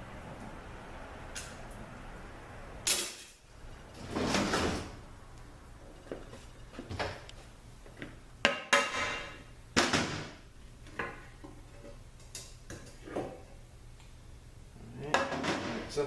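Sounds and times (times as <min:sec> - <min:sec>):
metal parts and tools clanking: 0:02.9 - 0:03.4.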